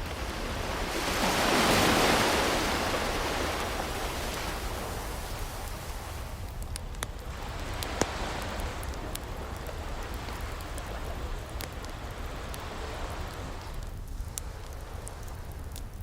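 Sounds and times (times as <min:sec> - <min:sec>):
ocean waves washing in: 0:00.0 - 0:06.6, 0:07.3 - 0:13.9
wood fire crackling: 0:00.0 - 0:16.0.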